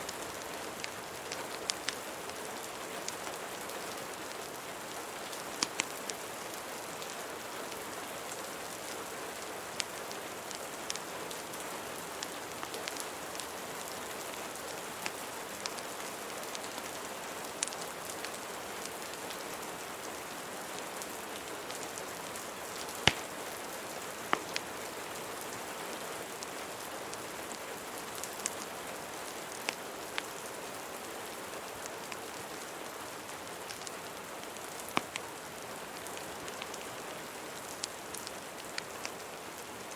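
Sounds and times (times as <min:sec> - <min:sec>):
steady rain: 0:00.0 - 0:39.9
fireplace crackling and popping: 0:00.1 - 0:03.4, 0:05.0 - 0:15.8, 0:16.5 - 0:19.4, 0:21.4 - 0:25.5, 0:29.5 - 0:30.4, 0:31.7 - 0:39.7.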